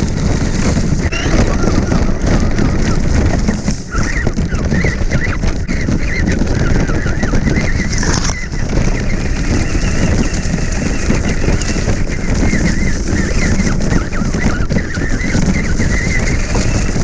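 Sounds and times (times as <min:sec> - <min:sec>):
rc car rumbling and rattling: 0:00.0 - 0:17.0
wind buffeting microphone: 0:00.0 - 0:17.0.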